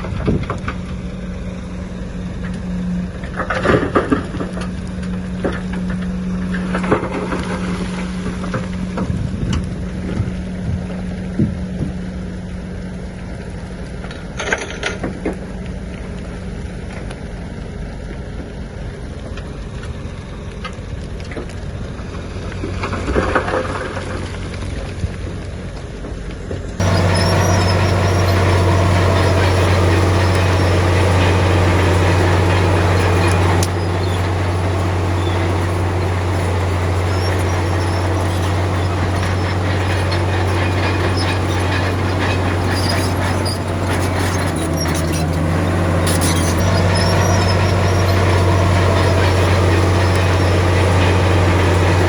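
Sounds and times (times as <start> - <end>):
bulldozer diesel engine running: 0.0 - 15.2, 26.8 - 52.0
soil and stone crunching: 26.8 - 52.0.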